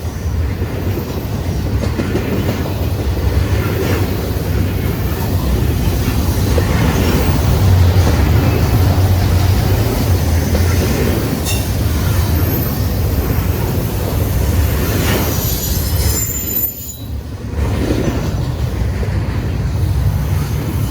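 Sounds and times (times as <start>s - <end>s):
train wheels rumbling on rail: 0.0s - 20.9s
high squeak: 15.0s - 17.2s.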